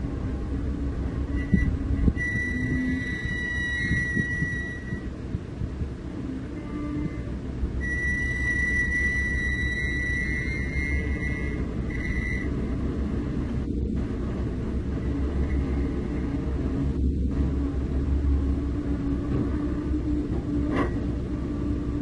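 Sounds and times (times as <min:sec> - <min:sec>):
diesel engine rumbling: 0:00.0 - 0:22.0
high whistle-like tone: 0:01.3 - 0:05.1, 0:07.8 - 0:12.5.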